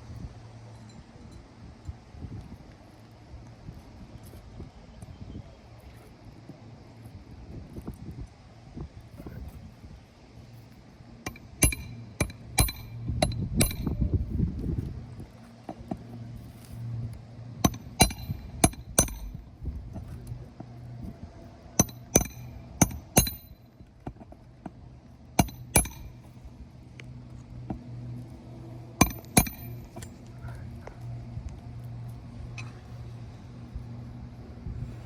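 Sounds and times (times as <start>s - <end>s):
steady low hum: 0.0s - 35.0s
hammer striking nails: 11.3s - 14.0s, 17.6s - 19.4s, 21.8s - 23.6s, 25.4s - 26.2s, 29.0s - 30.1s.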